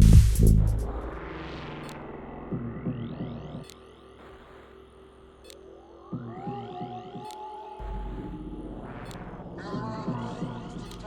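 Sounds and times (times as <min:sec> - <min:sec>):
heavy kick drum and bass pulse: 0:00.0 - 0:03.6.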